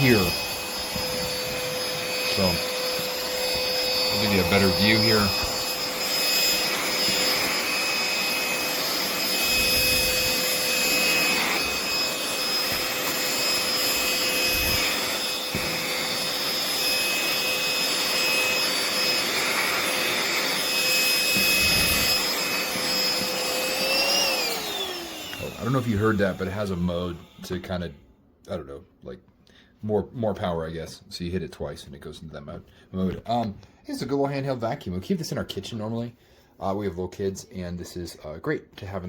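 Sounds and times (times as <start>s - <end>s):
handheld vacuum whining: 0.0s - 27.9s.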